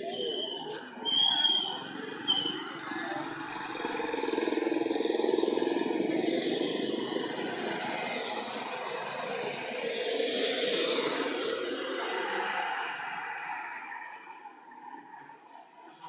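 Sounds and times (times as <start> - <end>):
motor engine running: 1.7 - 8.0.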